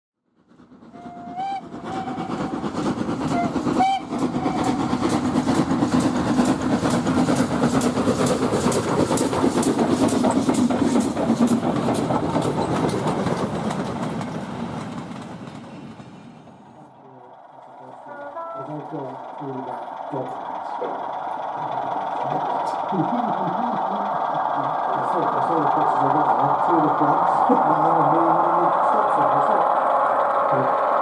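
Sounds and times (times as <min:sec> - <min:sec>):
wheels clattering over rail joints: 0:00.6 - 0:31.0
train whistle blasts: 0:01.0 - 0:02.6, 0:03.3 - 0:04.8, 0:18.0 - 0:18.8.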